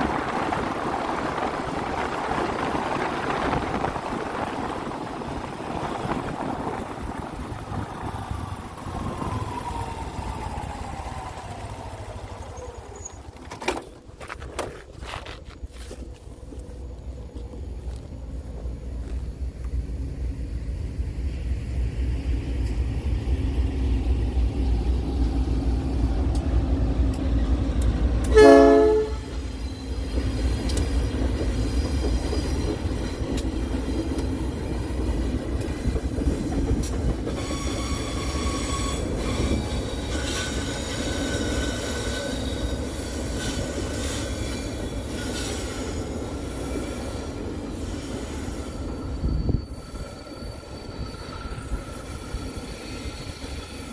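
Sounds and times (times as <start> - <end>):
train rumbling past: 0.0 - 53.9
train wheels squealing: 8.2 - 13.5, 28.3 - 53.9
locomotive horn blast: 28.2 - 29.5.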